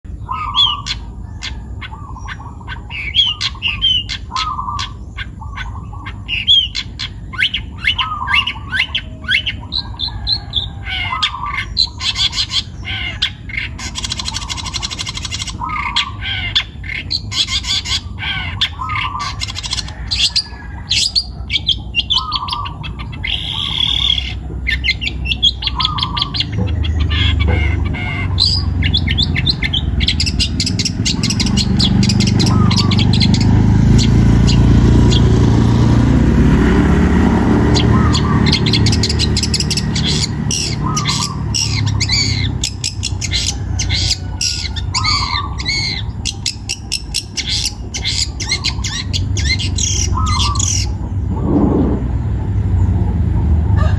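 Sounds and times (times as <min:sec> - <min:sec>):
bird chattering song: 0:00.0 - 0:53.9
bird rasping squawks: 0:00.1 - 0:35.4, 0:37.2 - 0:51.6
low rumble: 0:50.1 - 0:53.9.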